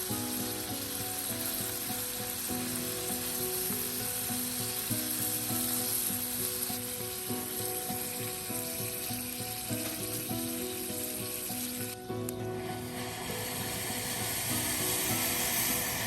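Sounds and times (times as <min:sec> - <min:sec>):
food sizzling in hot oil: 0:00.0 - 0:16.0
soft melody: 0:00.0 - 0:16.0.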